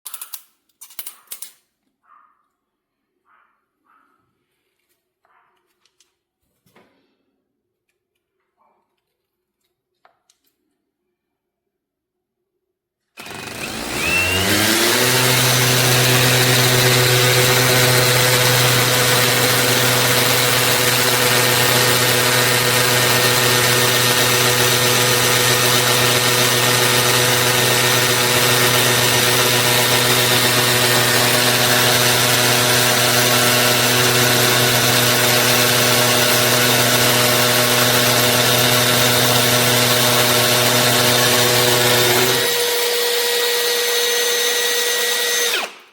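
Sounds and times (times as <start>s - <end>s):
cordless drill motor spinning: 13.2s - 45.9s.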